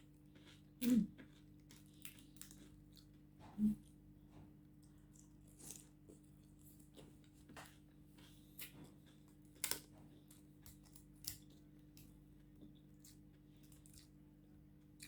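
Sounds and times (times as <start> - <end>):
eating crunches: 0.4 - 4.0.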